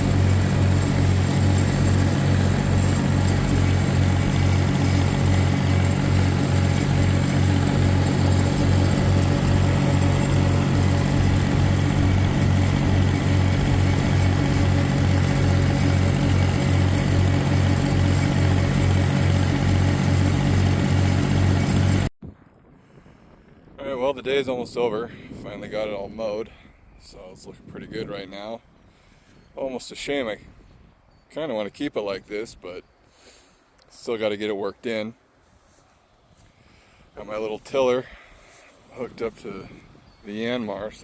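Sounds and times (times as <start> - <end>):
tractor engine throbbing under load: 0.0 - 22.1.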